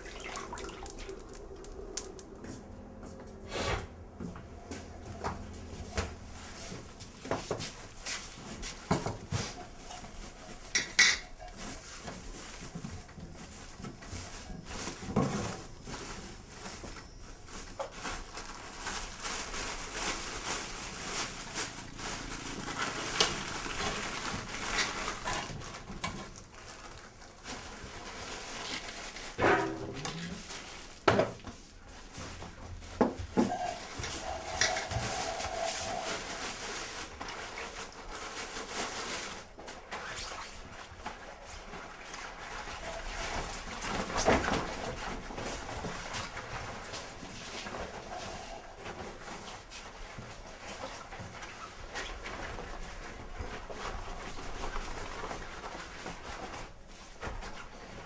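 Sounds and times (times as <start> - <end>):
animal calls: 0.0 - 2.4, 4.7 - 27.7.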